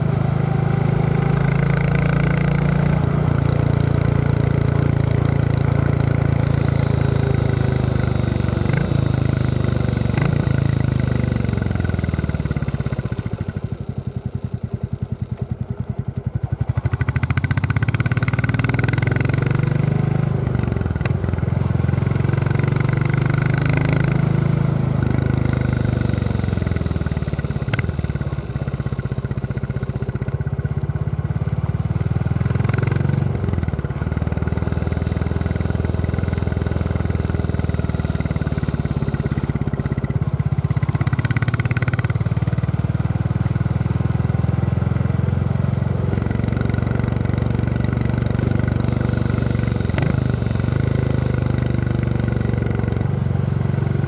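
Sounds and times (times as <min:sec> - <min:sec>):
motorcycle engine thumping: 0:24.9 - 0:53.2.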